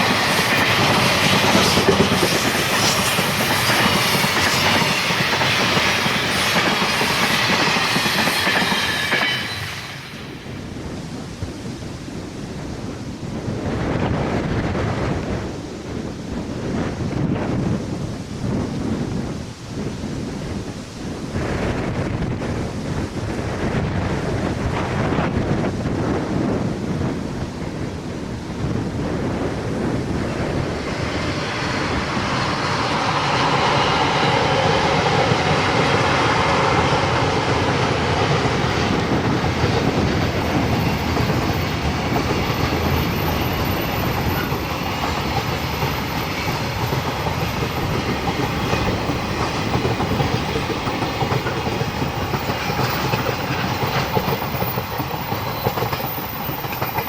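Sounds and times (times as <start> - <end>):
freight train wheels clattering: 0.0 - 10.6, 29.0 - 57.0.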